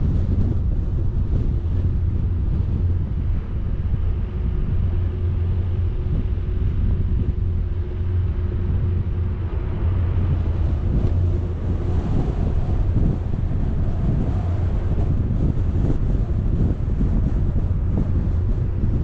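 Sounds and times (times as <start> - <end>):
low vehicle rumble: 0.0 - 19.0
wind buffeting a microphone: 0.0 - 19.0.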